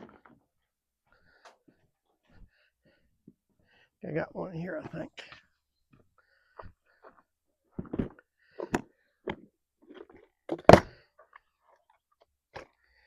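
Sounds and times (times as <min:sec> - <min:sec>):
hard objects knocking and clunking: 0:06.6 - 0:11.0.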